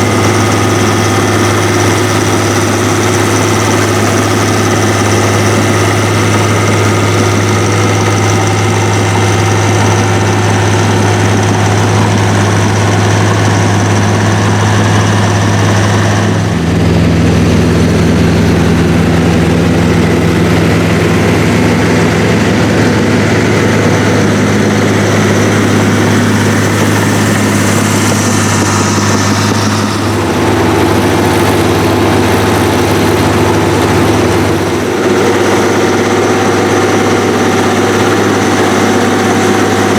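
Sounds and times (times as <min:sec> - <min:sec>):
heavy diesel tractor engines: 0:00.0 - 0:39.9.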